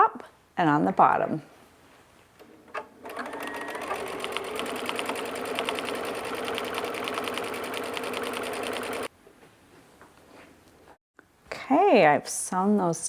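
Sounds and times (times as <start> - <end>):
sewing machine stitching: 2.4 - 9.1.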